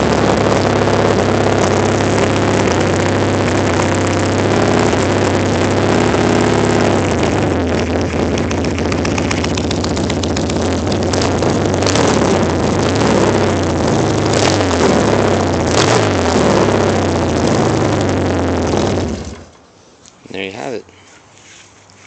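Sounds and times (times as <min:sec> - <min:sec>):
motorcycle engine idling: 0:00.0 - 0:15.7.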